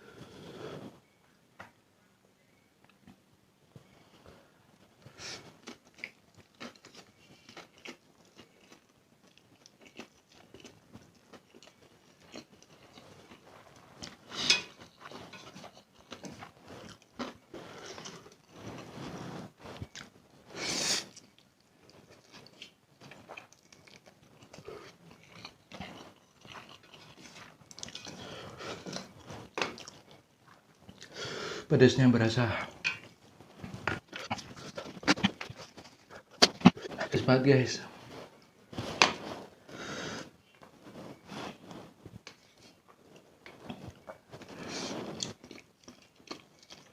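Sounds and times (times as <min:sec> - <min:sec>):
person chewing noodles: 0:05.0 - 0:31.4, 0:39.6 - 0:46.9.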